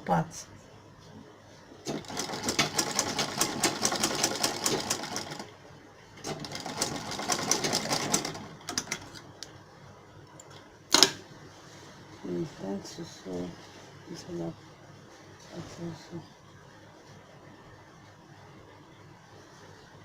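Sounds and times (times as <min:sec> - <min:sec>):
sewing machine stitching: 0:01.8 - 0:05.5, 0:06.2 - 0:09.2.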